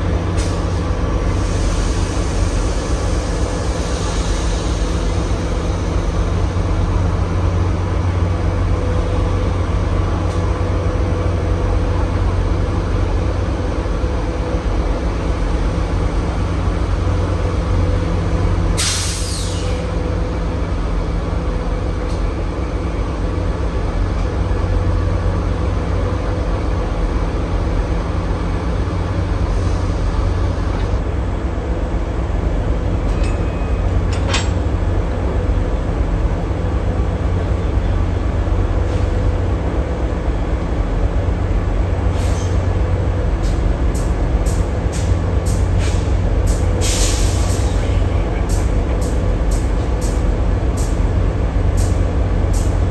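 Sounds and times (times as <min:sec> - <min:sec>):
loud hiss: 0:01.3 - 0:07.2, 0:18.8 - 0:19.9, 0:46.8 - 0:48.1.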